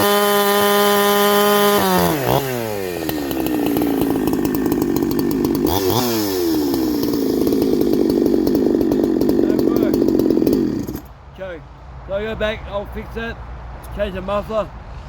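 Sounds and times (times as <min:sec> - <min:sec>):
chainsaw engine revving and idling: 0:00.0 - 0:11.1.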